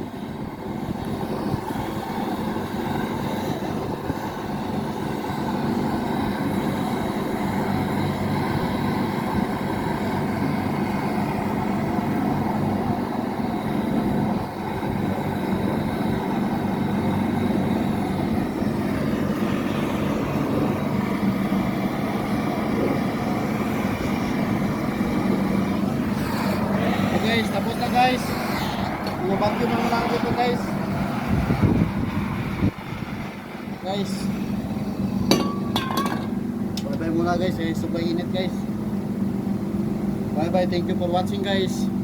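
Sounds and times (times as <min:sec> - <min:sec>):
air conditioner unit humming: 0:00.0 - 0:42.0.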